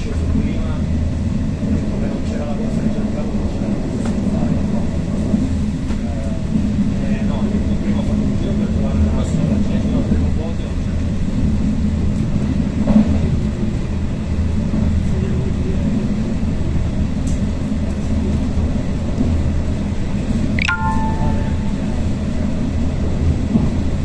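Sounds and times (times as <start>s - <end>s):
train rumbling on track: 0.0s - 24.0s
high falling tone: 20.6s - 22.0s.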